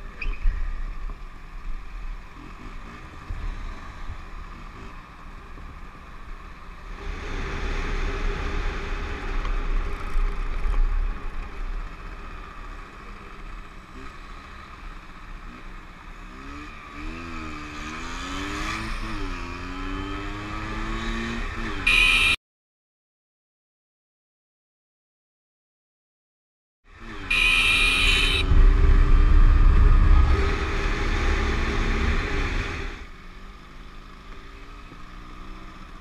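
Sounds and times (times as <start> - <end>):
motorcycle engine: 0.0 - 22.4, 26.9 - 36.0
road noise: 0.0 - 22.4, 26.9 - 36.0
wind rumble: 28.4 - 33.0.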